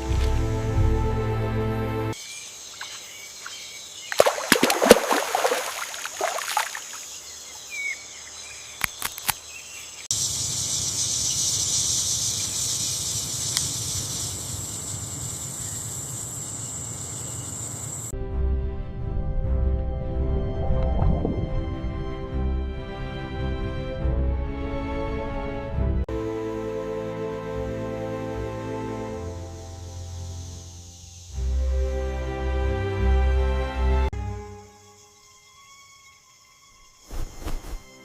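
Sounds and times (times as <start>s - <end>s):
background music: 0.0s - 2.2s, 18.1s - 30.7s, 31.4s - 35.5s
high insect buzz: 2.1s - 18.1s, 28.3s - 32.4s, 34.2s - 38.0s
splashing or rustling: 2.8s - 7.0s
sharp clicks: 8.8s - 9.4s.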